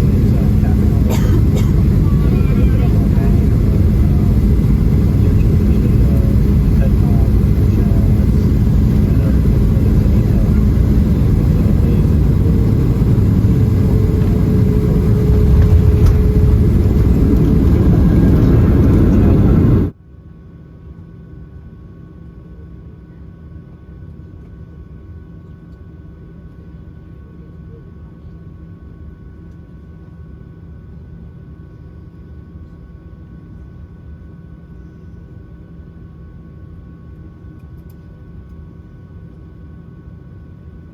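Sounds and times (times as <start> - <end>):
jet engines rumbling: 0.0 - 19.9
steady hum: 0.0 - 20.0
faint steady tones: 1.7 - 19.9.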